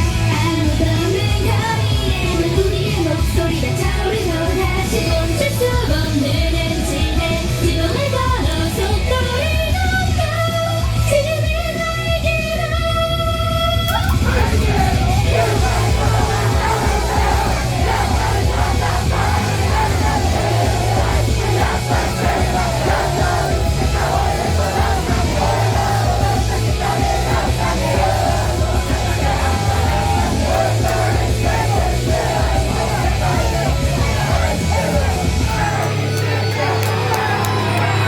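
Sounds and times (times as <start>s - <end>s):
shouted vocals: 13.9s - 38.0s
rock band playing live: 14.4s - 36.2s.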